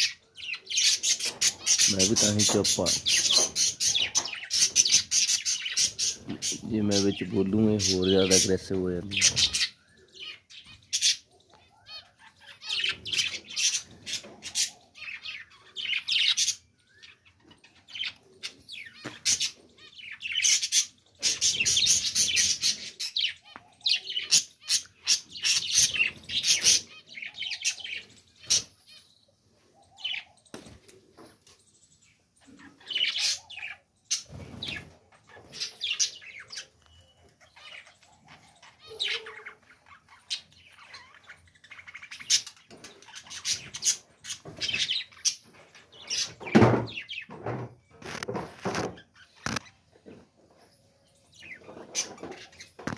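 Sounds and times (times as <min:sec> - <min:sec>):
budgerigars chirping: 0:00.0 - 0:29.1, 0:32.1 - 0:47.4.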